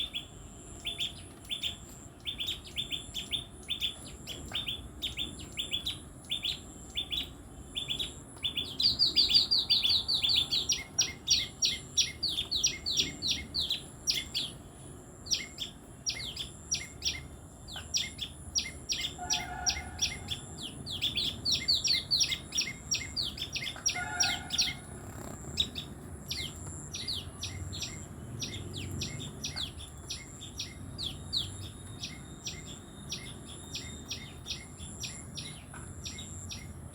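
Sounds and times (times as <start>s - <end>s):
tailorbirds chirping: 23.4s - 36.9s.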